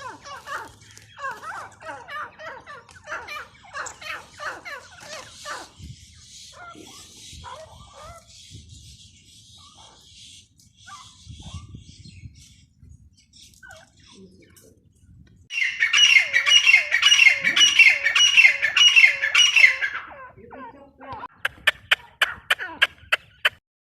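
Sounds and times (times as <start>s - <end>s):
francolin calling: 15.5s - 20.4s.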